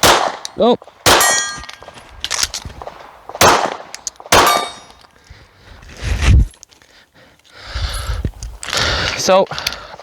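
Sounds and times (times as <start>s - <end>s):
pistol shots: 0.0s - 2.0s, 2.8s - 5.0s
steel target clanging: 1.2s - 1.8s, 4.4s - 5.0s.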